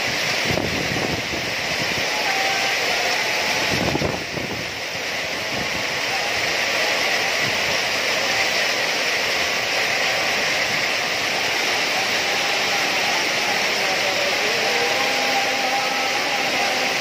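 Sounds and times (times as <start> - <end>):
heavy rain and hail: 0.0 - 17.0.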